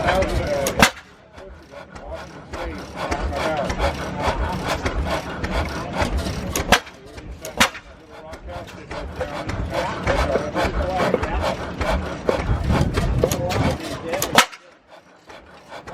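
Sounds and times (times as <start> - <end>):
stationary engine chuffing: 0.0 - 15.9.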